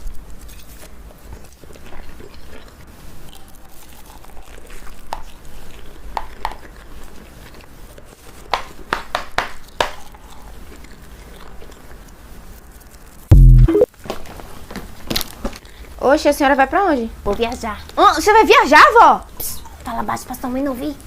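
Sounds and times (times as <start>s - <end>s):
crunchy crackle: 0.0s - 8.4s.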